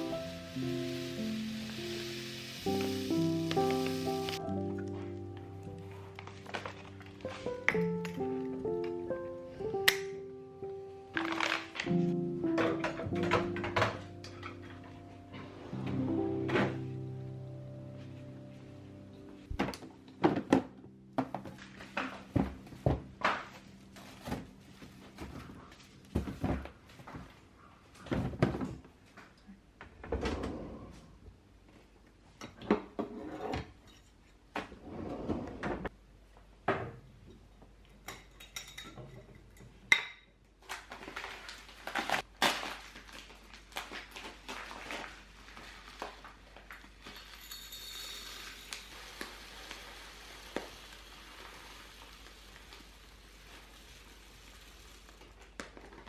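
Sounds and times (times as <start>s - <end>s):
dishes and cutlery clinking: 37.3s - 40.3s
soft hiss: 48.3s - 55.6s.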